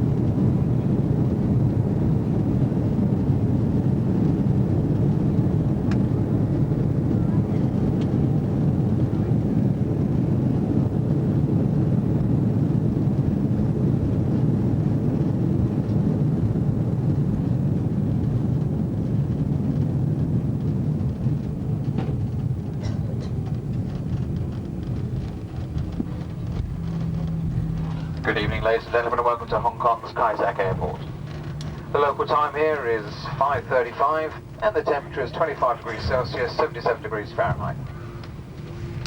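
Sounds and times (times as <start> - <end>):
airliner cabin engine rumble: 0.0 - 39.0
light rattles: 21.8 - 29.0.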